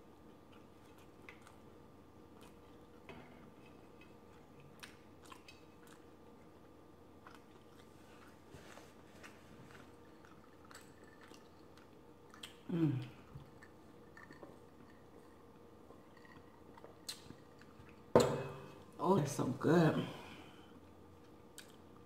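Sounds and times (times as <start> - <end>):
chewing clicks and smacks: 0.4 - 1.7, 4.0 - 8.3, 9.7 - 12.7, 16.1 - 18.0, 21.2 - 22.0.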